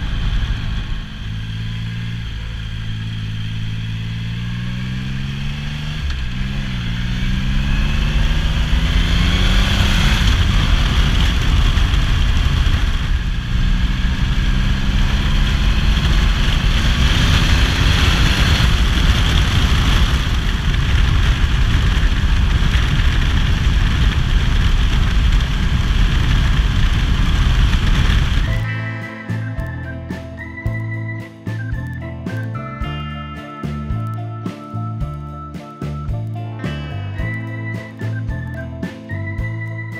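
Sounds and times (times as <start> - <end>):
motorcycle engine pulling away: 0.0 - 39.9
wind rush on microphone: 7.7 - 28.7.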